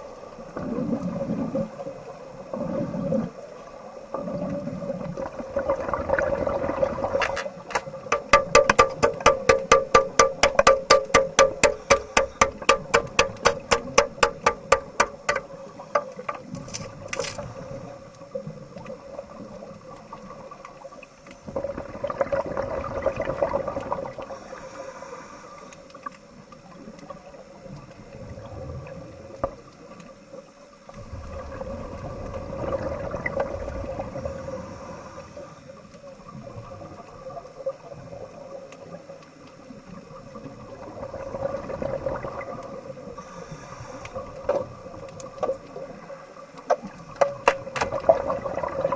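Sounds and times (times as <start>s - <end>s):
underwater bubbling and gurgling: 0.0s - 48.9s
steady hum: 8.1s - 16.1s.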